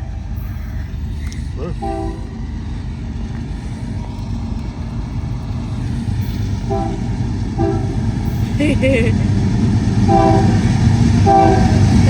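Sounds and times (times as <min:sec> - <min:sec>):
diesel locomotive rumbling: 0:00.0 - 0:12.0
short horn tones: 0:06.7 - 0:08.3.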